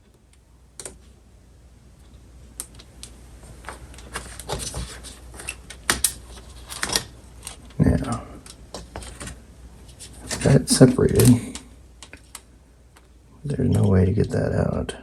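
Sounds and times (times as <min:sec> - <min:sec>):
metal parts clicking and clattering: 0:04.0 - 0:07.8.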